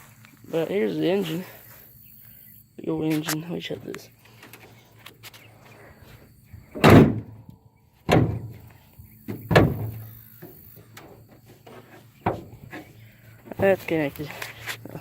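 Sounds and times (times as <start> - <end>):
car hood slamming shut: 6.8 - 7.4, 8.1 - 8.6, 9.3 - 10.1.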